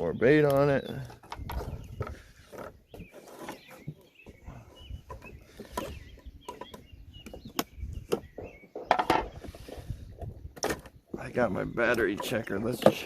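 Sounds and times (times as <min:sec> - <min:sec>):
bird chirps: 0:00.0 - 0:13.0
fishing gear knocking and rustling: 0:00.5 - 0:04.4.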